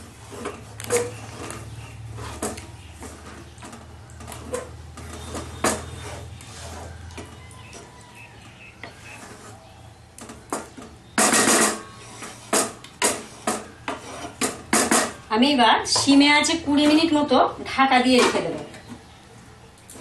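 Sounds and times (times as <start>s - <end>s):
utensil scraping and knocking pan: 0.0s - 9.6s, 10.2s - 15.2s
stirring thick gravy: 0.0s - 11.2s, 11.8s - 15.3s.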